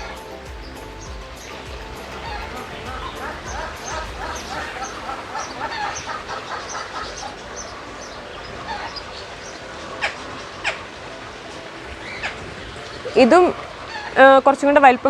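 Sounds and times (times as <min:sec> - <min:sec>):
loud downward-sweeping bird call: 0:00.0 - 0:11.0
birds chirping and chattering: 0:00.0 - 0:15.0.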